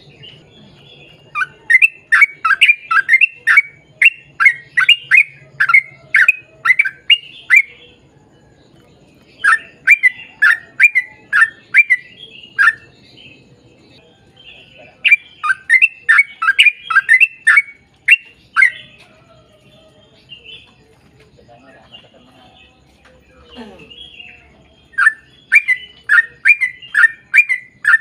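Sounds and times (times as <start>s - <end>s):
bulbul chirping song: 0.0s - 28.0s.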